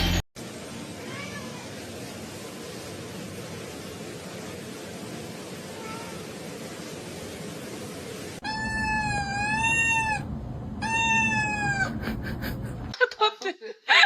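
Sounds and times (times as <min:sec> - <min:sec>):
steady hiss: 0:00.4 - 0:08.4
cat meowing: 0:01.0 - 0:01.7, 0:05.8 - 0:06.3, 0:08.4 - 0:12.0.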